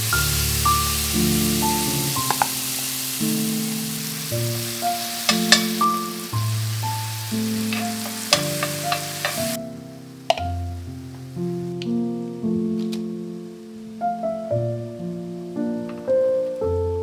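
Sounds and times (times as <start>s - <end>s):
vegetables sizzling in oil: 0.0s - 13.7s
background music with held notes: 0.0s - 17.0s
metal spoon scraping a pan: 5.2s - 6.0s, 7.6s - 9.6s.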